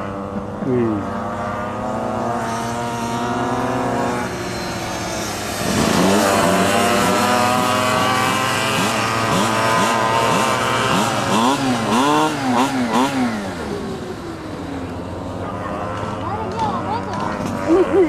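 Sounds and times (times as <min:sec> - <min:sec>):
minibike engines revving: 0:00.0 - 0:18.0.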